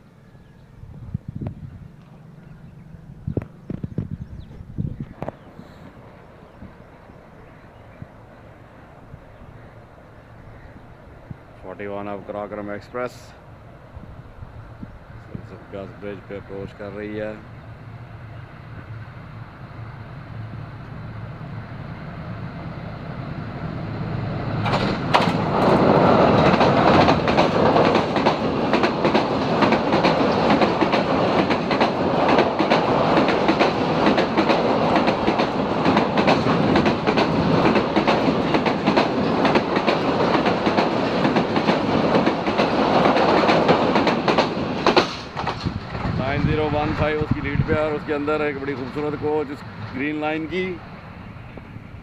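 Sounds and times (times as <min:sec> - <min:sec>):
train engine rumble: 0:00.0 - 0:52.0
rush of train wheels: 0:18.7 - 0:52.0
wheels clacking over rail joints: 0:24.5 - 0:50.8.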